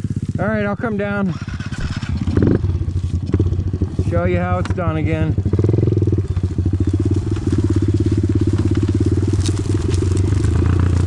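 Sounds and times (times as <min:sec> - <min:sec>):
small engine chugging: 0:00.0 - 0:11.0.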